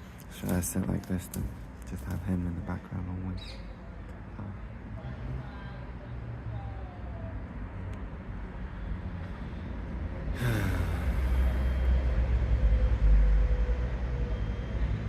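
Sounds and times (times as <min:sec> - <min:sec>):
heavy vehicle rumbling past: 0:08.9 - 0:15.0.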